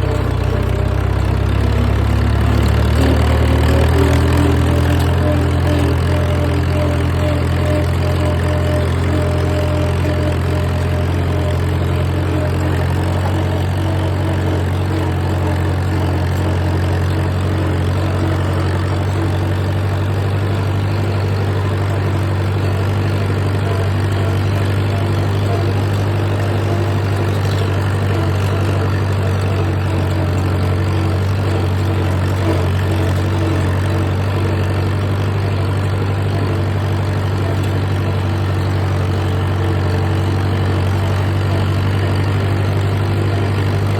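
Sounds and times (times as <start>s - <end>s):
vehicle engine running steadily: 0.0s - 43.9s.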